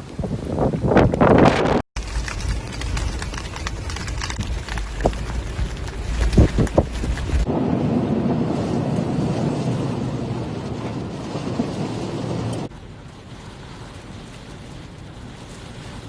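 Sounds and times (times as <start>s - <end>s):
wind and rain rushing: 0.0s - 16.0s.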